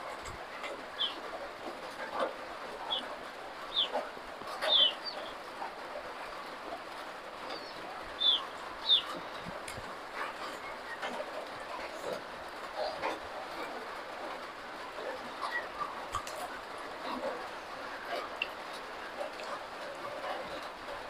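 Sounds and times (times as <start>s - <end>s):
bird chirping: 0.9s - 1.2s, 2.8s - 3.1s, 3.7s - 4.0s, 4.6s - 5.4s, 7.5s - 9.5s.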